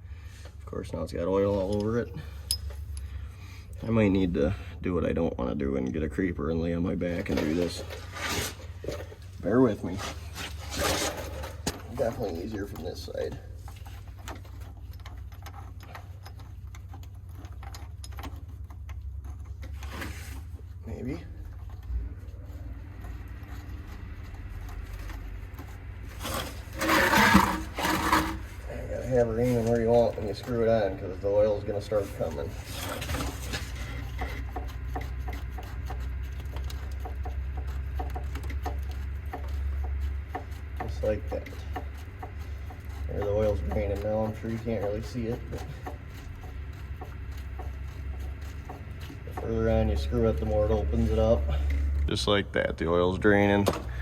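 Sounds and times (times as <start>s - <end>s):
steady low hum: 0.0s - 54.0s
clicks and scrapes of metal fitting: 1.5s - 4.2s, 7.0s - 20.8s, 21.4s - 52.4s.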